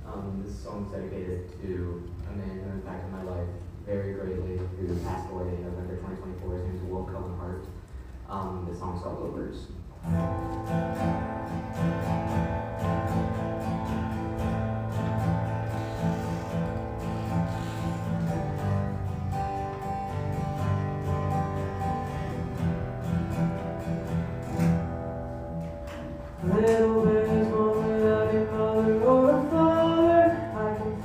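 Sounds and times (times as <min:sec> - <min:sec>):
acoustic guitar strumming: 0:10.0 - 0:31.0.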